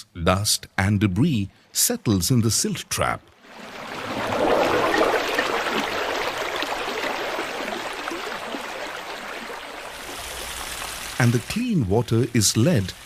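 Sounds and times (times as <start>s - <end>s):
running water rushing and trickling: 3.4s - 13.0s.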